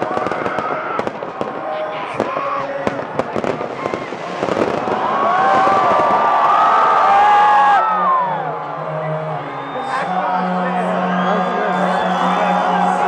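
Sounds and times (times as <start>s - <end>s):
fireworks bursting and crackling: 0.0s - 7.3s
crowd shouting and cheering: 0.0s - 13.0s.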